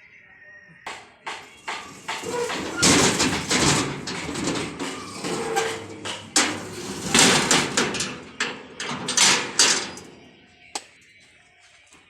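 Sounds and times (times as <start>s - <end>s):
rattling noise: 0.9s - 10.3s.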